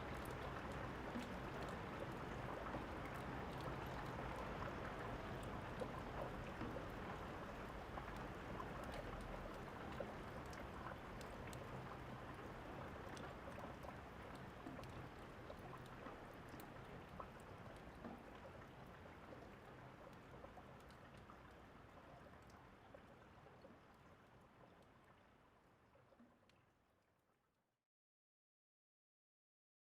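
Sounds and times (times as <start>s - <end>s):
steady rain falling: 0.0s - 23.1s.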